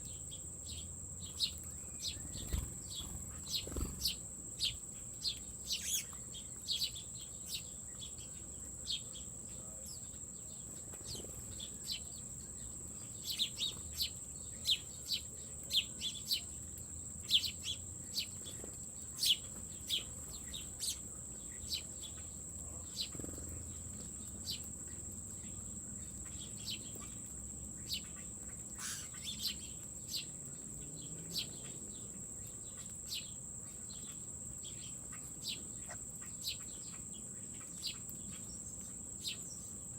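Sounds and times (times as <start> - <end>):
insect drone: 0.0 - 39.9
small birds chirping: 0.0 - 39.9.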